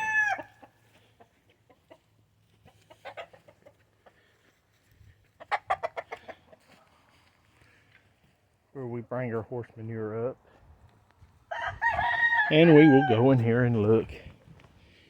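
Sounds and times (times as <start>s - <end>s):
roosters clucking: 0.0s - 7.7s, 11.0s - 14.9s.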